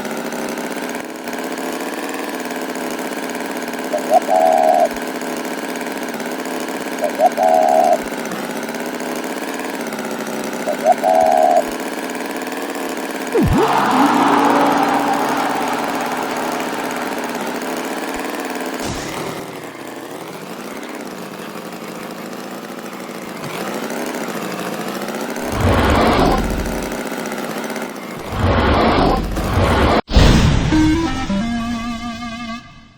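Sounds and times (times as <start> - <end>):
engine humming unevenly: 13.3 - 20.5.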